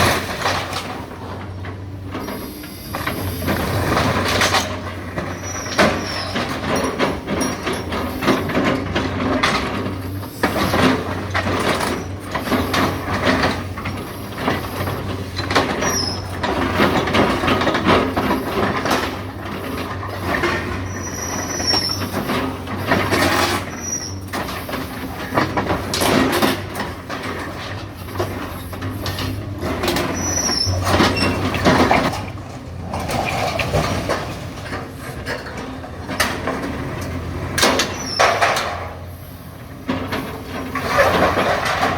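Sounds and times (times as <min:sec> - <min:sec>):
diesel engine running: 0:00.0 - 0:41.9
high squeals of scraping metal: 0:05.2 - 0:08.5, 0:15.7 - 0:16.4, 0:20.7 - 0:22.3, 0:23.0 - 0:24.3, 0:29.9 - 0:31.6, 0:37.8 - 0:38.6.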